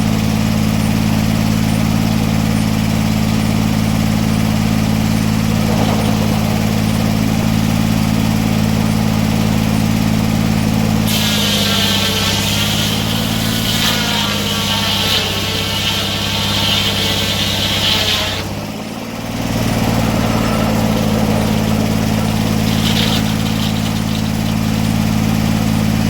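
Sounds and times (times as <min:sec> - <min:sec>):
sawmill engine running: 0:00.0 - 0:26.0
saw blade cutting log: 0:05.5 - 0:26.0.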